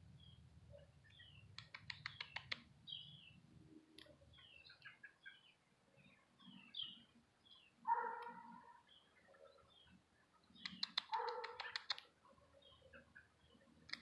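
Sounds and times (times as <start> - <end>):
small birds chirping faintly: 0.0 - 14.0
sharp clicks: 1.5 - 2.7, 10.6 - 12.1.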